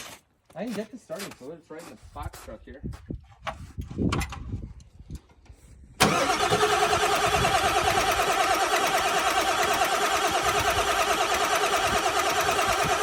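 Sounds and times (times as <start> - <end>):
diesel engine cranking: 6.0 - 13.0.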